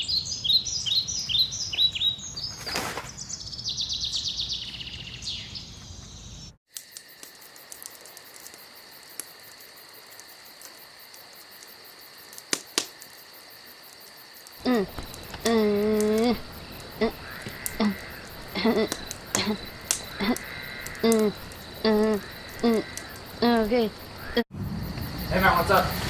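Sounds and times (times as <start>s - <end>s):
birds chirping with a trill: 0.0s - 6.6s
high insect drone: 6.7s - 26.0s.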